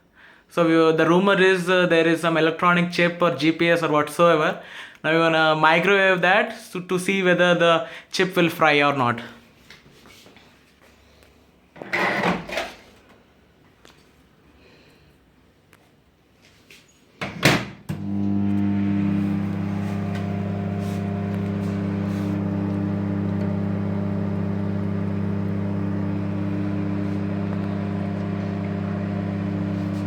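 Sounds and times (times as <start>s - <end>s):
microwave oven humming: 17.9s - 30.0s.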